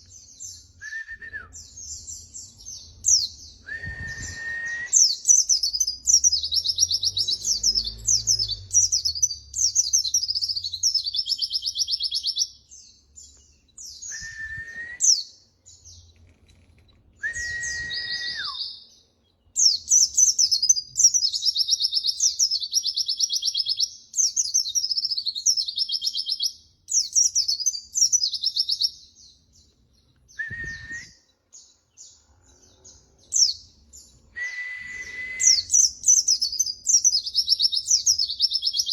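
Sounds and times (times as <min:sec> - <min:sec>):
short whistled bird notes: 0:03.5 - 0:05.6, 0:13.8 - 0:15.3, 0:17.2 - 0:18.9, 0:30.3 - 0:31.3, 0:34.3 - 0:37.6.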